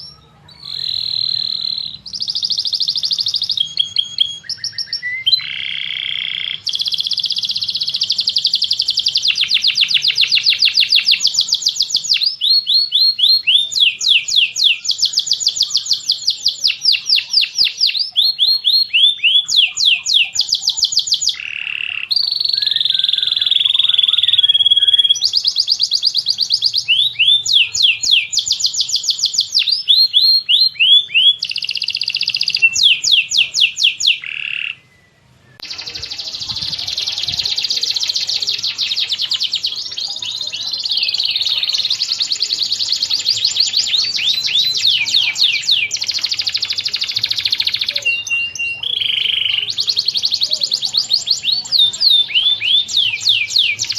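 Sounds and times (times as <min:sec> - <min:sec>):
songbirds whistling and trilling: 0:00.0 - 0:53.9.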